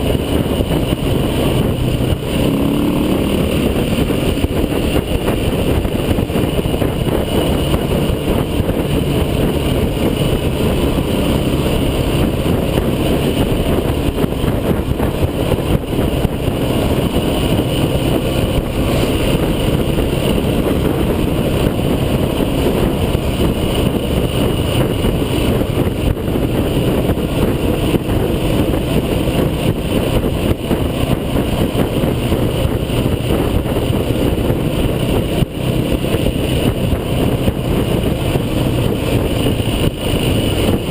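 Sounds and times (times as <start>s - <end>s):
off-road vehicle engine: 0.0s - 40.9s.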